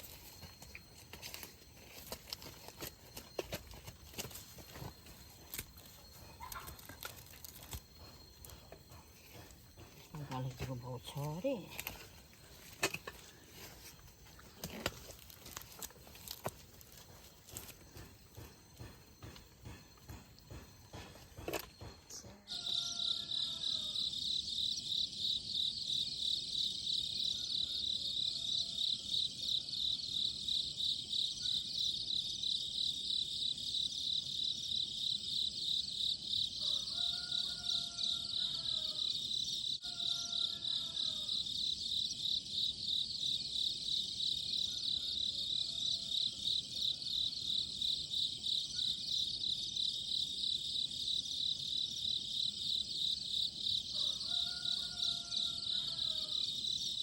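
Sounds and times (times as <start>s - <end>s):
insect chorus buzzing: 0.0s - 57.0s.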